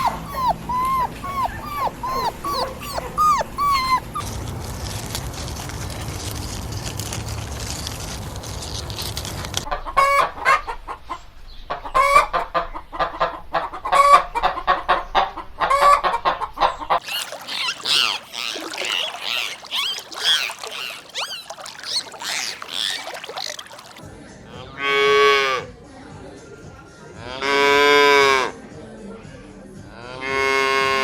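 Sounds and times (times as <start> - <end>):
chickens clucking: 0.0 - 4.3, 9.6 - 24.0
geese honking: 17.0 - 24.0.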